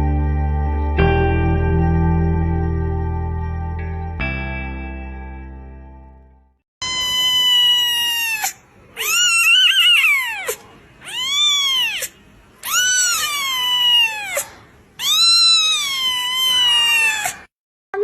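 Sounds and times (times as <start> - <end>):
cat meowing: 6.8 - 17.5.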